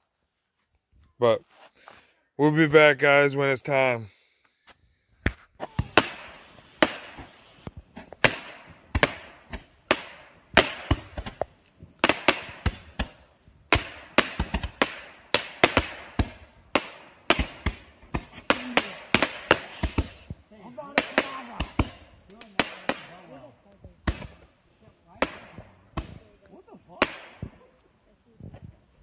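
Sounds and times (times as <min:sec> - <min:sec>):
fireworks bangs and pops: 0:05.2 - 0:29.0.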